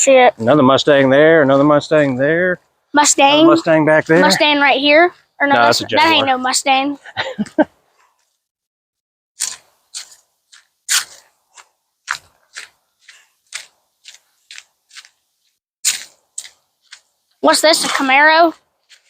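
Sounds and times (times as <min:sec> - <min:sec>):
footsteps crunching: 0:09.4 - 0:19.0.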